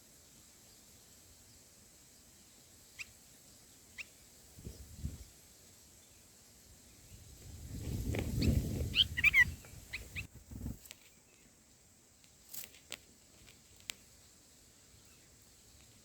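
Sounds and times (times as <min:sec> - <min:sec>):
nestlings chirping: 0:03.9 - 0:05.3, 0:07.9 - 0:10.4
rustling of feathers: 0:07.2 - 0:11.5, 0:12.3 - 0:14.2
faint clicks: 0:12.2 - 0:14.1.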